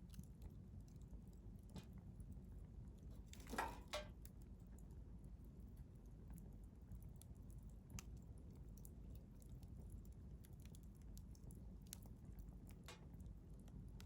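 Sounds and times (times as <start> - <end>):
low hiss of burning: 0.0 - 14.0
campfire crackling and popping: 6.4 - 14.0.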